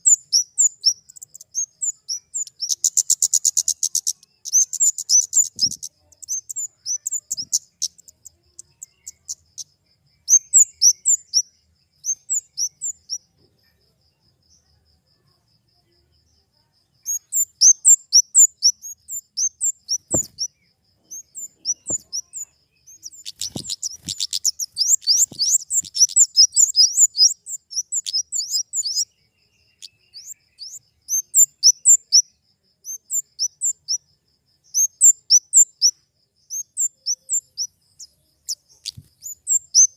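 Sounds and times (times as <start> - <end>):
bird sharp chipping calls: 0.0 - 9.6, 17.1 - 29.1, 38.5 - 39.9.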